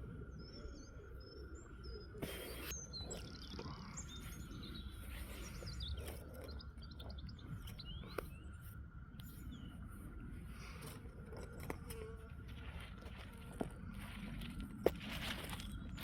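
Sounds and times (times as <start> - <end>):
birds chirping and singing: 0.0 - 11.8.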